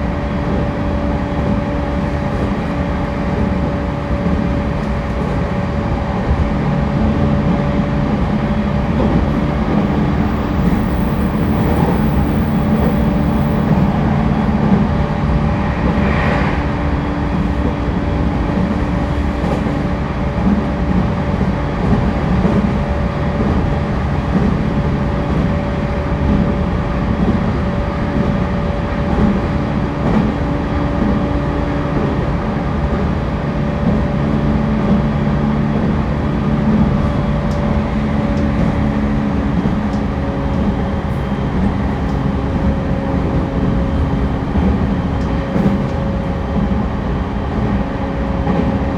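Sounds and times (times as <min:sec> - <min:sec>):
train wheels rumbling on rail: 0:00.0 - 0:48.9
low tone: 0:08.4 - 0:18.6.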